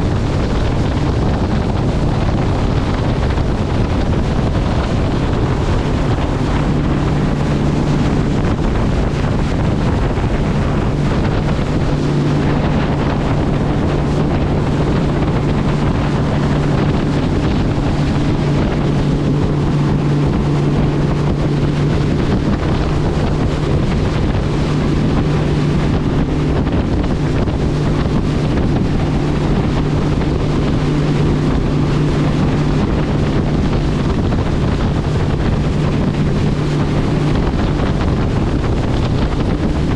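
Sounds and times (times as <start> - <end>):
boat engine humming: 0.0 - 39.9
rushing water: 0.0 - 39.9
wind buffeting microphone: 0.0 - 39.9.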